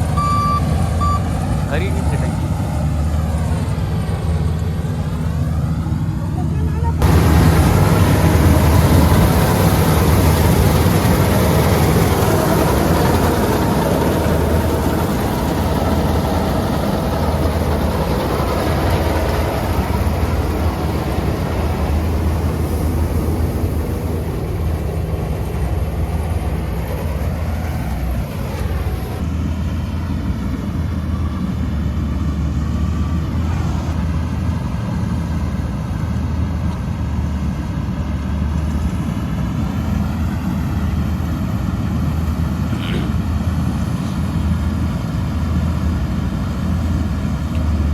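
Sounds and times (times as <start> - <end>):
diesel engine humming: 0.0 - 47.9
higher-pitched machine noise: 5.0 - 29.2.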